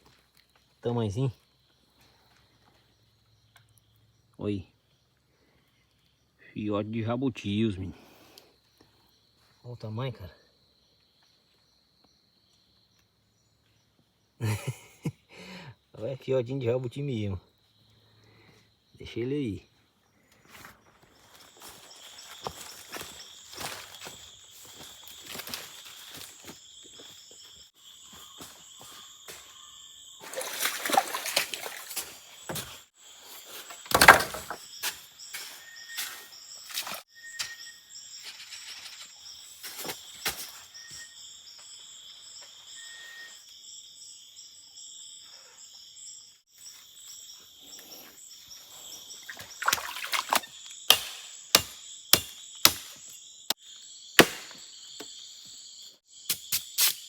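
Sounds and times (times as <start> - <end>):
high-pitched insect chorus: 0.1 - 57.0
whistled bird notes: 35.4 - 39.1, 42.7 - 43.4.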